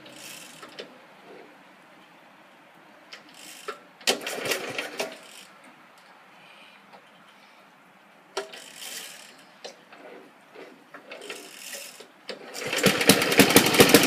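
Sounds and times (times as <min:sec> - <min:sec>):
starter cranking engine: 0:03.2 - 0:05.5, 0:11.1 - 0:14.0.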